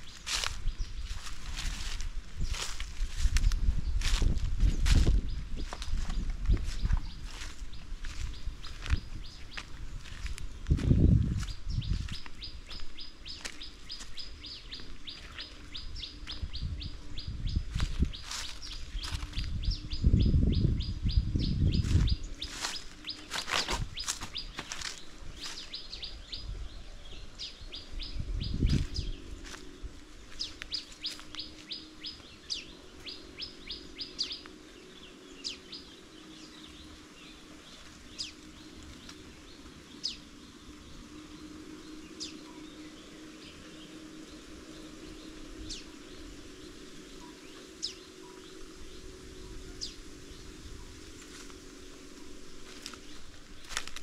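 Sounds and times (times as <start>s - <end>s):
footsteps crunching through dry leaves: 0.0s - 20.5s, 21.2s - 26.8s, 27.4s - 54.0s.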